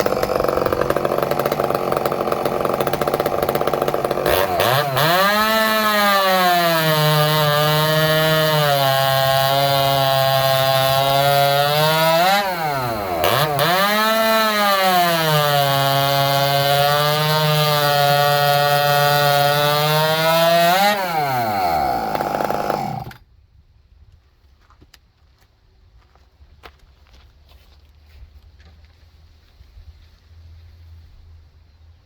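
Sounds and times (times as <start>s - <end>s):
chainsaw running at full revs: 0.0s - 23.2s.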